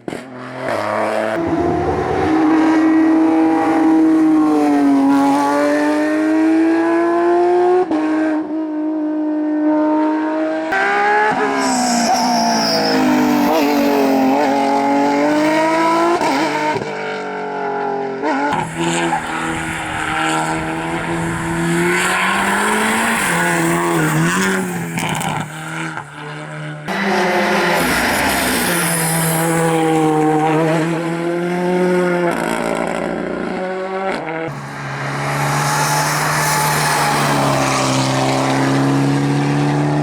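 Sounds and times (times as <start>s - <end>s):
rally car engines revving: 0.0s - 40.0s
tyre squeal: 11.5s - 14.9s, 18.6s - 26.2s, 34.5s - 39.0s.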